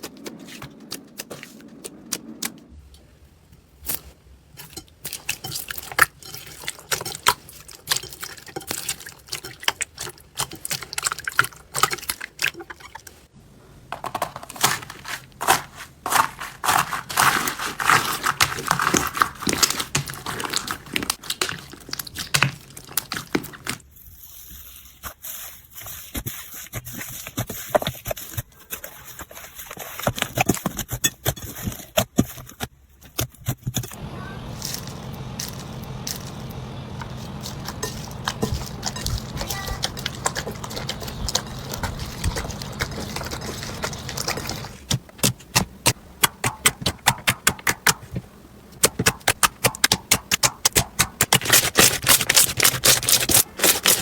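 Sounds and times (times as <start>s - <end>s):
slime crackling and popping: 48.8s - 54.0s.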